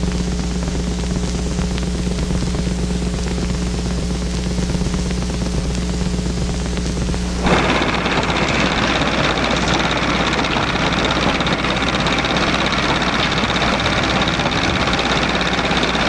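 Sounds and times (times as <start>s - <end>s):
mechanical running noise: 6.1s - 16.0s.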